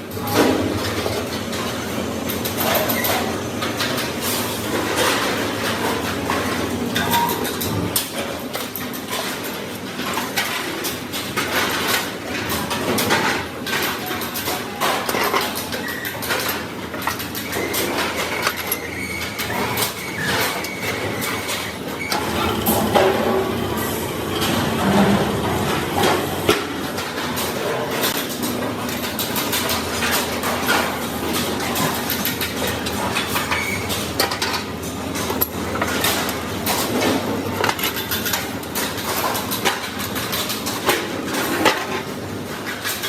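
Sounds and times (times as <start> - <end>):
machinery din: 22.0 - 27.0.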